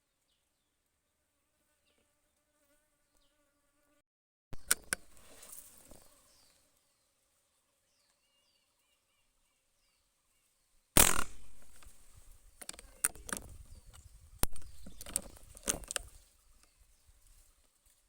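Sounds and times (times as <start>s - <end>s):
rustling: 5.0s - 6.7s
faint bird chirps: 7.9s - 10.8s
loud gunshot: 11.0s - 12.1s
sharp clicks and knocks: 14.4s - 16.1s.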